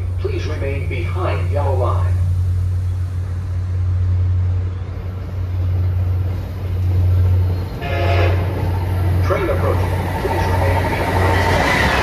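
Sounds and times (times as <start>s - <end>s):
train rumbling past: 0.0s - 12.0s.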